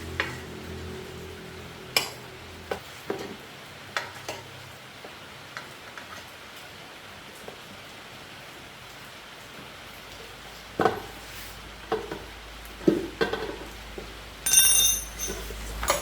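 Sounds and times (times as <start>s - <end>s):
low hum: 0.0s - 2.8s.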